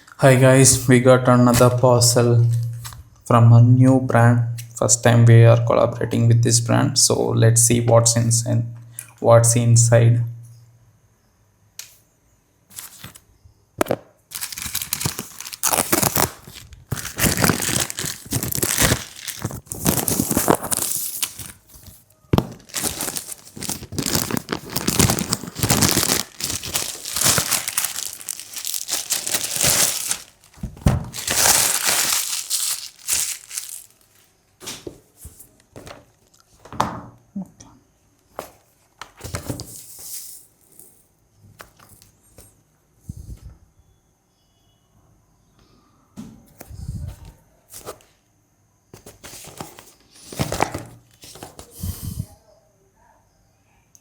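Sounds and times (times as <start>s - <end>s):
packaging ripping and crinkling: 12.7s - 13.2s, 13.8s - 34.3s.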